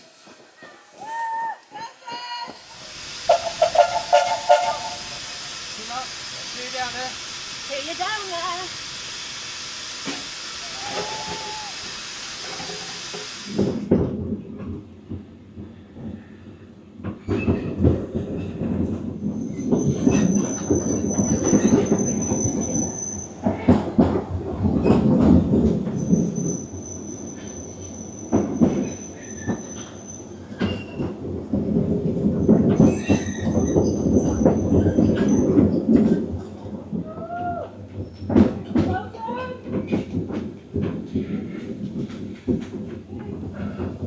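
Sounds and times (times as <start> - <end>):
train wheels rumbling and knocking: 0.1 - 44.0
high-pitched wheel squeals: 10.6 - 12.7.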